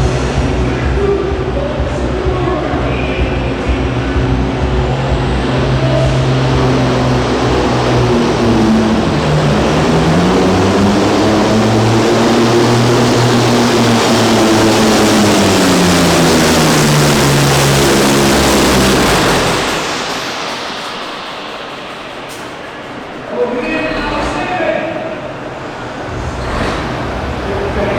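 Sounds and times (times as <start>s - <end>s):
diesel truck engine under load: 0.0s - 27.9s.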